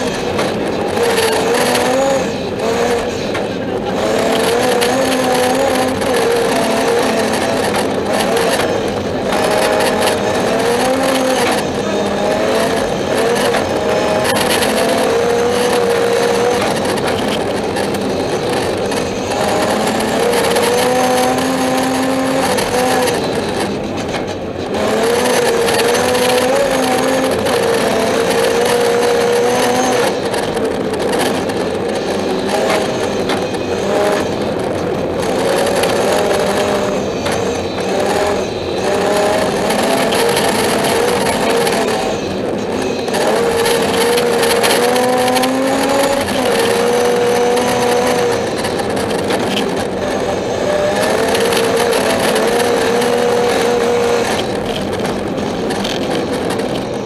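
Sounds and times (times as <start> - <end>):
car engine revving through gears: 0.0 - 57.0.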